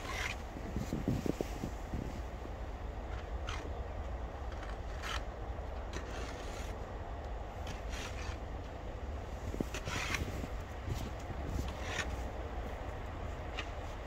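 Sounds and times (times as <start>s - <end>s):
snow crunching and scraping: 0.0s - 2.4s
steady low rumble: 0.0s - 14.0s.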